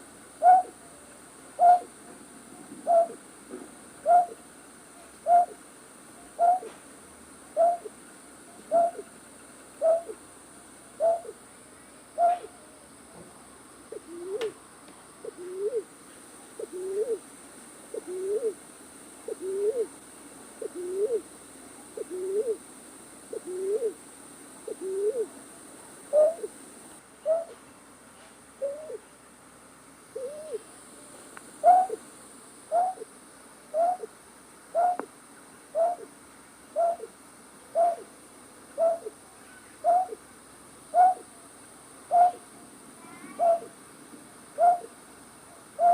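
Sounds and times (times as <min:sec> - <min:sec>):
night bird hooting call: 0:00.4 - 0:00.8, 0:01.6 - 0:02.0, 0:02.8 - 0:03.2, 0:04.0 - 0:04.4, 0:05.2 - 0:05.6, 0:06.3 - 0:06.8, 0:07.6 - 0:07.9, 0:08.6 - 0:09.1, 0:09.8 - 0:10.2, 0:11.0 - 0:11.4, 0:12.2 - 0:12.7, 0:13.9 - 0:14.6, 0:15.2 - 0:15.9, 0:16.6 - 0:17.2, 0:18.0 - 0:18.6, 0:19.3 - 0:19.9, 0:20.6 - 0:21.2, 0:22.0 - 0:22.6, 0:23.3 - 0:24.0, 0:24.7 - 0:25.3, 0:26.1 - 0:26.6, 0:27.2 - 0:27.6, 0:28.6 - 0:29.0, 0:30.2 - 0:30.7, 0:31.6 - 0:32.0, 0:32.7 - 0:33.1, 0:33.7 - 0:34.1, 0:34.7 - 0:35.1, 0:35.7 - 0:36.1, 0:36.7 - 0:38.1, 0:38.8 - 0:39.2, 0:39.8 - 0:40.2, 0:40.9 - 0:41.3, 0:42.1 - 0:42.4, 0:43.3 - 0:43.7, 0:44.6 - 0:44.9.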